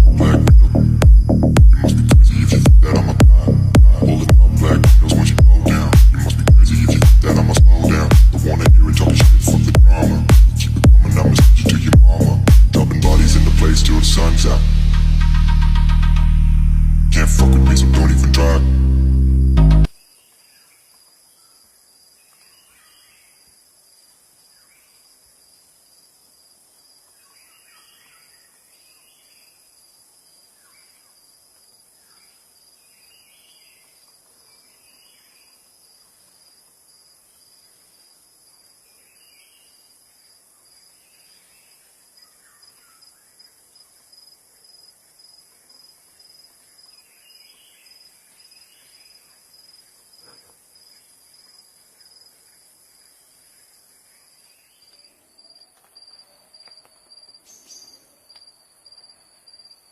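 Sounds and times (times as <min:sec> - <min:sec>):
insect trilling: 0:00.0 - 0:15.6
regular pulsing: 0:00.0 - 0:19.9.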